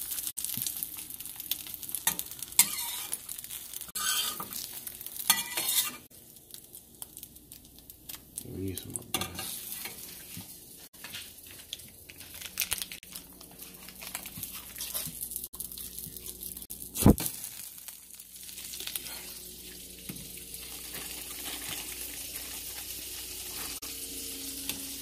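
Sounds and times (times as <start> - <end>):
frying pan sizzling: 0.0 - 25.0
packaging crinkling: 11.2 - 19.0.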